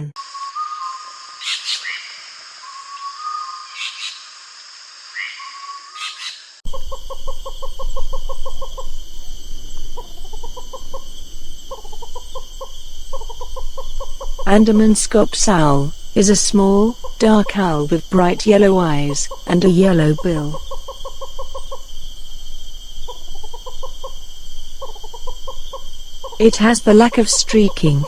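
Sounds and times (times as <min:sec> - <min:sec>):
forest birds calling: 0:00.0 - 0:04.3, 0:05.1 - 0:28.0
high-pitched insect drone: 0:06.7 - 0:28.0.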